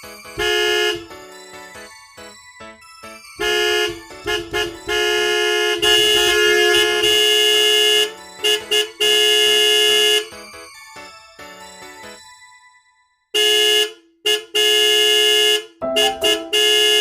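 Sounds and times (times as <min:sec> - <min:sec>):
vehicle horn honking: 0:00.4 - 0:01.0, 0:03.4 - 0:10.2, 0:13.4 - 0:17.0
light musical beat: 0:15.8 - 0:17.0.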